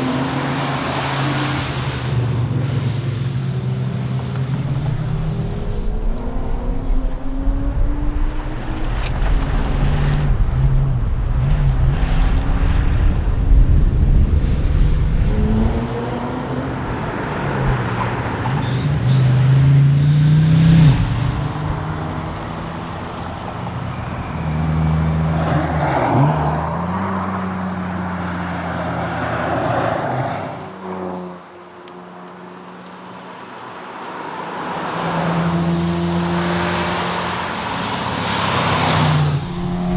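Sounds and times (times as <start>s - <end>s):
rally car engine revving: 4.1s - 23.1s.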